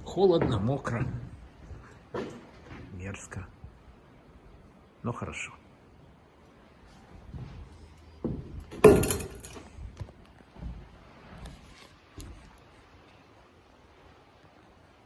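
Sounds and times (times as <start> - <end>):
hard objects knocking and clattering: 8.2 - 10.1.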